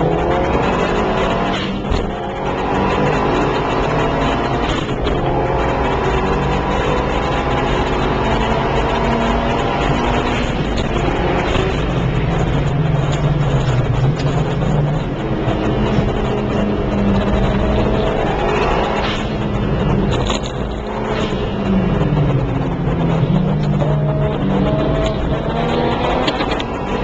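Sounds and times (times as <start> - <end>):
car engine revving: 0.0 - 27.0
road and wind noise: 0.0 - 27.0.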